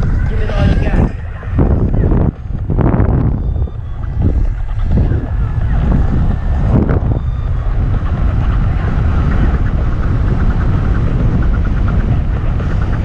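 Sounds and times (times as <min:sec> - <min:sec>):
wheels rolling on trail: 0:00.0 - 0:13.0
wind on microphone: 0:00.0 - 0:13.0.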